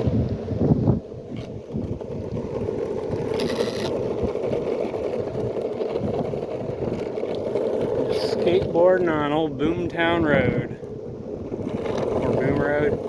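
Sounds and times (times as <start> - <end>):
skateboard wheels rolling on asphalt: 0.0 - 13.0.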